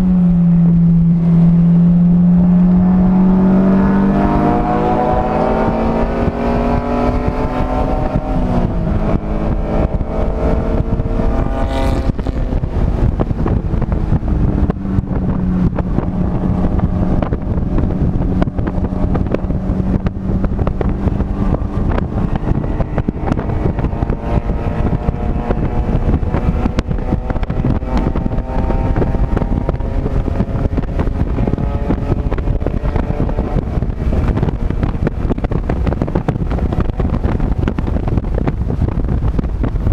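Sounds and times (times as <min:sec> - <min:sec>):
race car engine: 0:00.0 - 0:39.9
road rumble: 0:00.0 - 0:39.9
wind noise: 0:00.0 - 0:39.9.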